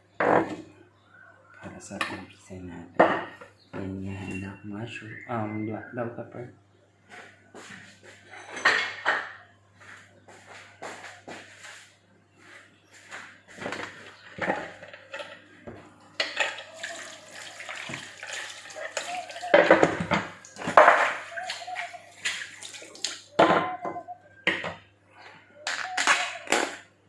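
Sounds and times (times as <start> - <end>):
tap water splashing in sink: 16.3 - 23.3.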